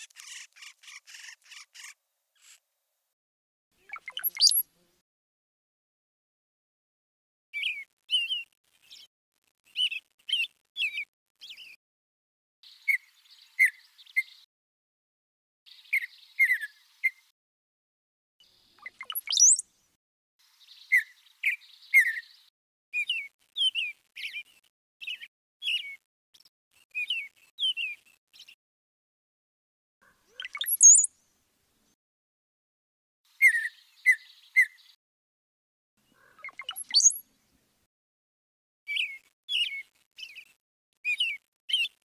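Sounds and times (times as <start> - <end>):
small birds chirping: 0.0 - 2.7, 3.8 - 5.0, 7.6 - 11.8, 12.6 - 14.5, 15.7 - 17.3, 18.4 - 28.6, 30.0 - 32.0, 33.3 - 35.0, 36.0 - 37.9, 38.9 - 42.0.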